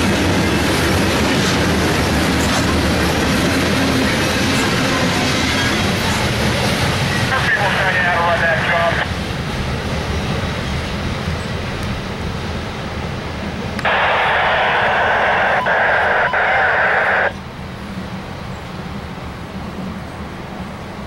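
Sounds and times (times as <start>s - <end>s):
train rumbling: 0.0s - 21.0s
radio static burst: 7.3s - 9.1s, 13.8s - 17.3s.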